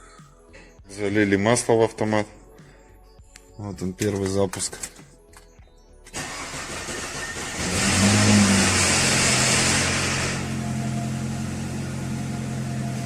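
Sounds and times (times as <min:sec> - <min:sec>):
car engine starting and idling: 0:06.0 - 0:13.0.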